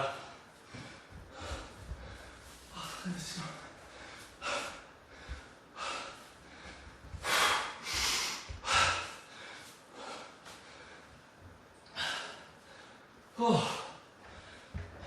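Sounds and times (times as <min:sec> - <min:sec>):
man gasping for breath: 0:00.0 - 0:11.1.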